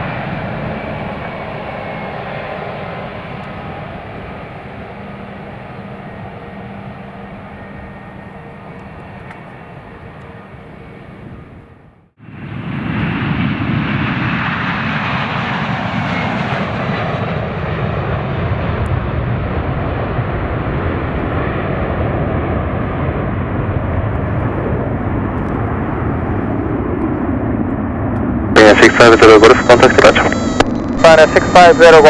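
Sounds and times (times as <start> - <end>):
falling whine: 0.0 - 11.7, 28.6 - 32.0
jet engines roaring: 0.0 - 32.0.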